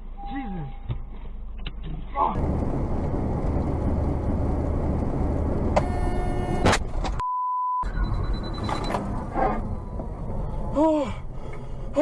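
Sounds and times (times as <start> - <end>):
car road and engine rumble: 1.1 - 7.2, 7.8 - 12.0
car horn: 5.8 - 7.0
short single-pitch bleep: 7.2 - 9.0.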